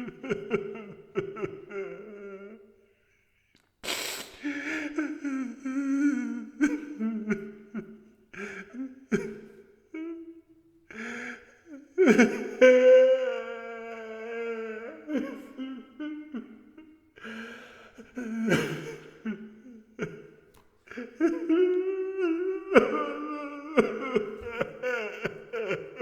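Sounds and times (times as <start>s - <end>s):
man crying with wailing sobs: 0.0s - 3.0s, 4.4s - 26.0s
sharp gasping breaths: 3.8s - 5.0s.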